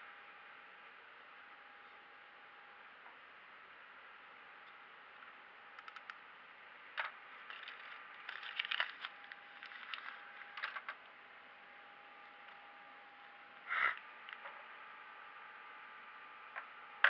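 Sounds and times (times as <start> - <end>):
faint high hum: 0.0 - 17.0
small objects clicking and scraping: 5.8 - 6.2, 7.0 - 11.0.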